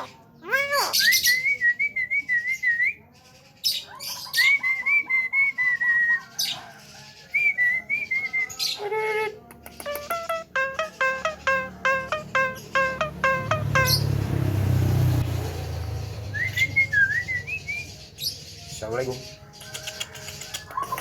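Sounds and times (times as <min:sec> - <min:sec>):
myna whistling and chattering: 0:07.3 - 0:14.0, 0:16.3 - 0:18.0, 0:19.6 - 0:21.0.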